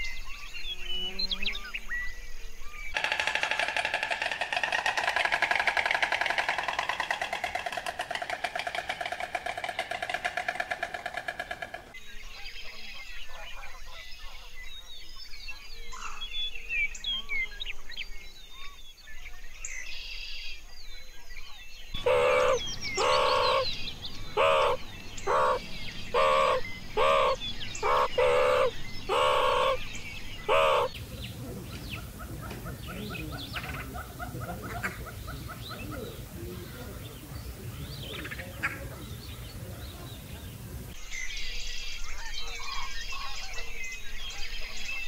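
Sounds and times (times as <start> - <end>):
small birds chirping: 0.0 - 45.0
fast bird trill: 3.0 - 12.0, 22.0 - 31.1
loud animal calls: 3.0 - 12.0, 22.0 - 37.2.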